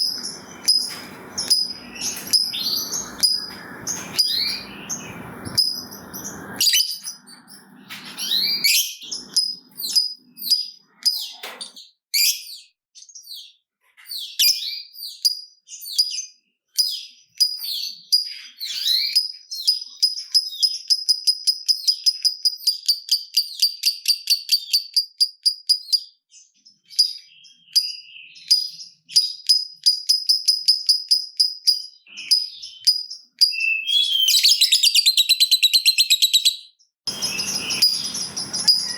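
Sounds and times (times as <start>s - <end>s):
lovebird chirping: 0.0s - 11.4s, 26.8s - 38.9s.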